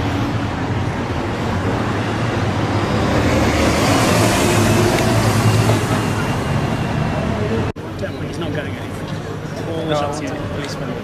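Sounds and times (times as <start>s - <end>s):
rushing noise: 0.0s - 7.7s.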